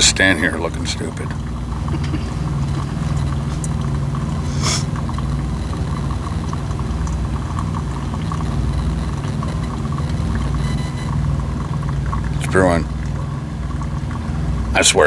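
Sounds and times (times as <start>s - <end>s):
coffee maker brewing hum: 0.0s - 15.0s
short hiss: 4.4s - 4.9s.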